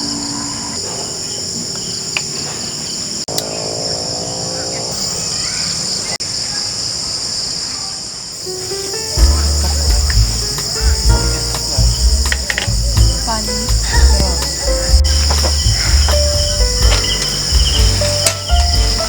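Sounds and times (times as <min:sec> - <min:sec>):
crickets chirping: 0:00.0 - 0:19.0
music with deep bass: 0:09.2 - 0:19.0.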